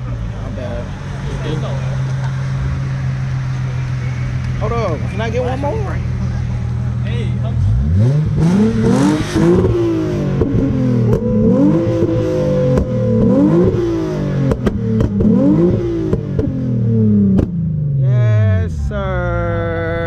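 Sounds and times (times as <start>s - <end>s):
car engine revving: 0.0s - 20.0s
exhaust pops: 9.2s - 13.8s, 14.4s - 16.6s, 17.2s - 17.6s.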